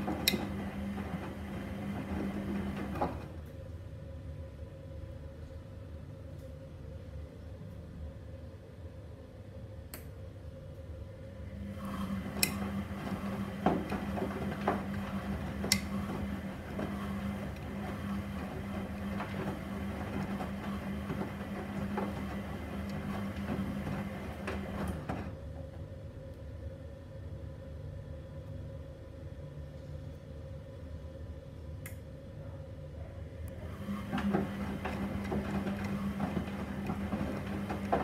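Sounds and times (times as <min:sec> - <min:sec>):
wet laundry tumbling: 0:00.0 - 0:03.4, 0:11.8 - 0:25.4, 0:33.8 - 0:38.0
washing machine motor hum: 0:00.0 - 0:04.0, 0:11.2 - 0:27.0, 0:33.2 - 0:38.0.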